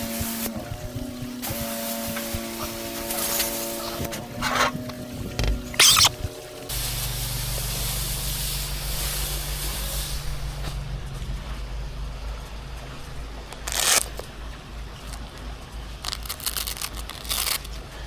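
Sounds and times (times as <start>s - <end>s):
water spraying hiss: 0.0s - 5.1s, 5.8s - 11.6s
engine humming: 0.0s - 18.0s.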